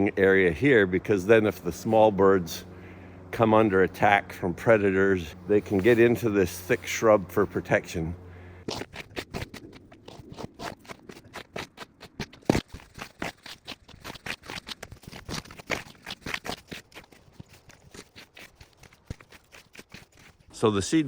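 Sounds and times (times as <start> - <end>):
crunches and scrapes in snow: 5.2 - 7.7.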